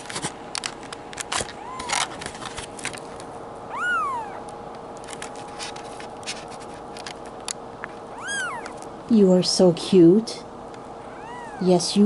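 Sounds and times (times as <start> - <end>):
kitten mewing: 1.5 - 2.1, 3.7 - 4.5, 8.1 - 8.9, 11.0 - 11.8.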